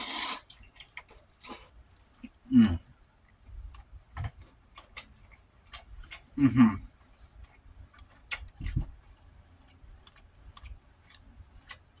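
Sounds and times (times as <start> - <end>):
low vocal grunt: 2.5 - 2.8, 6.4 - 6.9
wet chewing and mouth clicks: 7.4 - 12.0.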